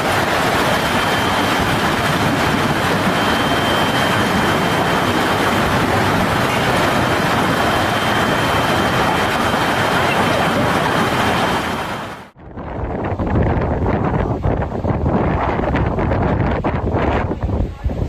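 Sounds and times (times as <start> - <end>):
heavy rain: 0.0 - 12.4
storm wind roaring: 0.0 - 18.0.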